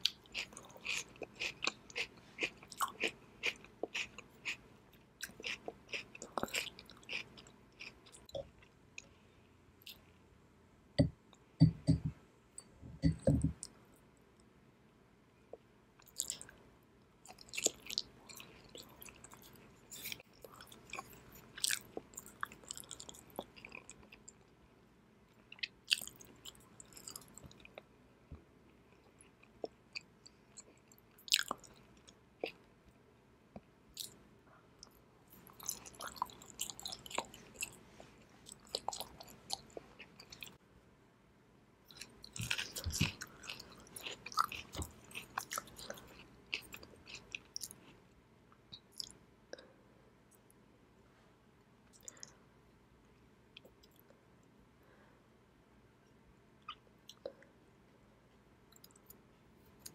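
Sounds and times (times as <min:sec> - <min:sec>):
close chewing with mouth clicks: 0:00.0 - 0:09.1, 0:17.2 - 0:24.5, 0:25.5 - 0:27.9, 0:28.9 - 0:32.6, 0:34.8 - 0:40.6, 0:41.9 - 0:48.0.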